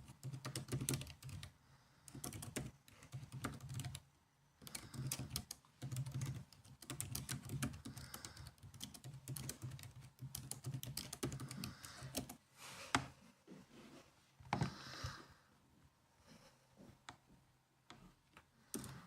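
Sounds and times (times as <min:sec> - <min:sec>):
laptop keyboard typing: 0:00.0 - 0:04.0, 0:04.6 - 0:12.4, 0:18.7 - 0:19.0.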